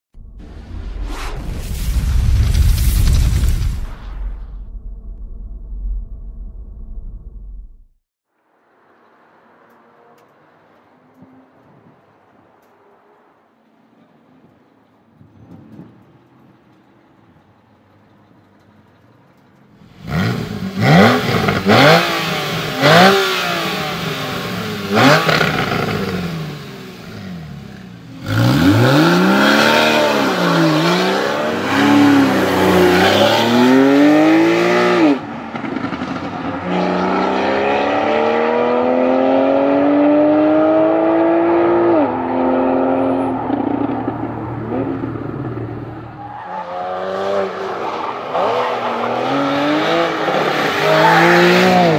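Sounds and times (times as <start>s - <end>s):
car engine revving: 19.8s - 46.4s.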